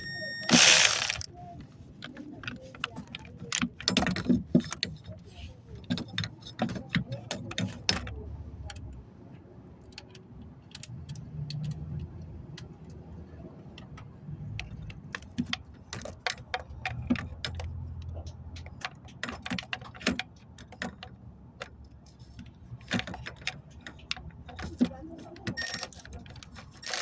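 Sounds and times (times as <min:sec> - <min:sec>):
clicks of small hard objects: 0:00.5 - 0:01.3, 0:22.8 - 0:27.0.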